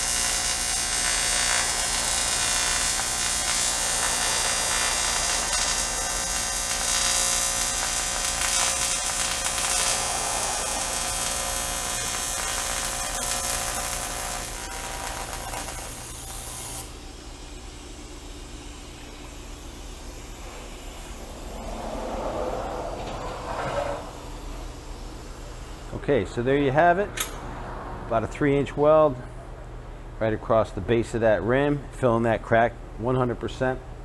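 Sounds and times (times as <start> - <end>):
welding arc buzzing: 0.0 - 21.9, 24.0 - 27.5.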